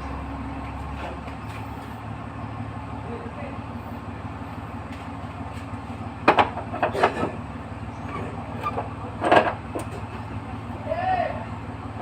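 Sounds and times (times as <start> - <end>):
metal clanks and knocks: 6.2 - 7.4, 8.0 - 10.3.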